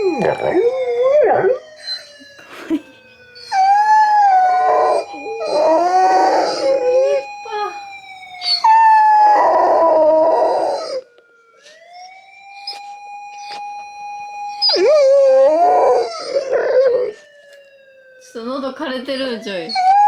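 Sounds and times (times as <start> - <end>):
dog howling: 0.0 - 2.1, 3.4 - 11.0, 14.6 - 17.2, 19.7 - 20.0
police siren wailing: 0.0 - 20.0.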